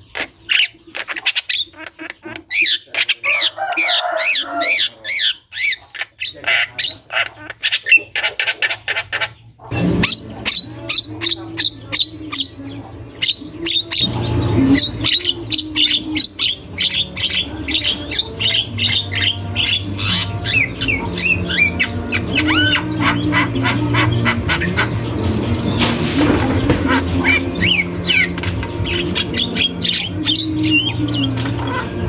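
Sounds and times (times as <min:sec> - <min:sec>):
bird chattering and whistling: 0:00.0 - 0:32.0
steady low hum: 0:09.7 - 0:32.0
brief rushing noise: 0:25.7 - 0:27.0.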